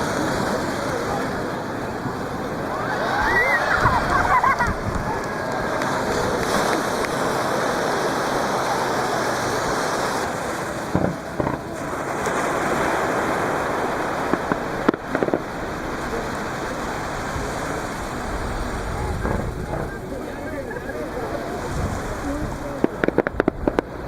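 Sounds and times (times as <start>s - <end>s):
surf washing on beach: 0.0s - 24.0s
fireworks bangs: 10.7s - 12.4s, 13.5s - 16.2s.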